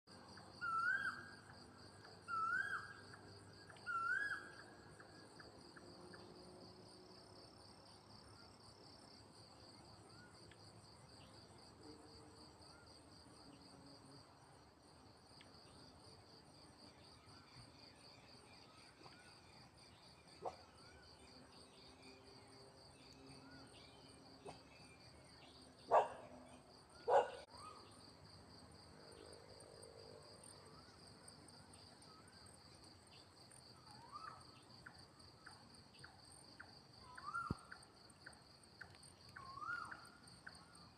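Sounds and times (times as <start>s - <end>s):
crickets and insects trilling: 0.3s - 40.9s
rising chirping calls: 3.8s - 4.6s.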